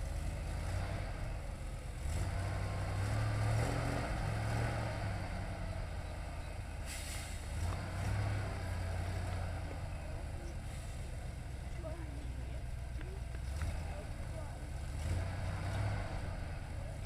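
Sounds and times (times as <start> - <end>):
truck engine revving under load: 0.0 - 17.0
short hiss: 6.8 - 7.4.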